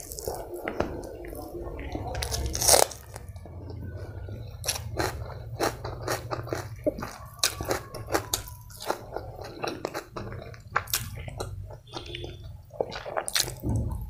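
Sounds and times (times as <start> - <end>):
low steady hum: 0.0 - 14.0
wet chewing and mouth smacks: 4.4 - 14.0.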